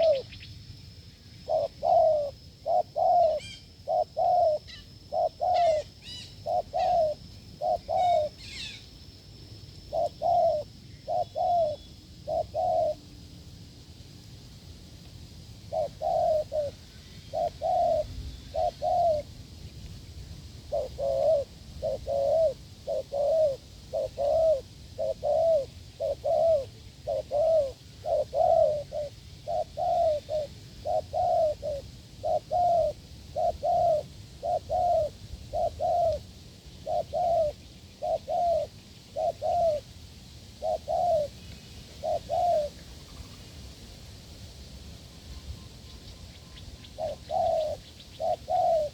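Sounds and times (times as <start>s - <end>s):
dove cooing: 0.0s - 0.4s, 1.4s - 8.8s, 9.8s - 13.1s, 15.7s - 19.4s, 20.7s - 39.9s, 40.6s - 43.4s, 46.6s - 48.9s.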